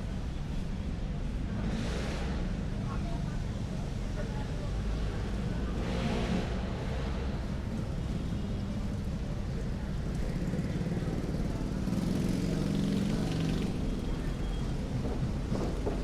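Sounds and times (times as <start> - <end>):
vehicle engines running: 0.0 - 16.0.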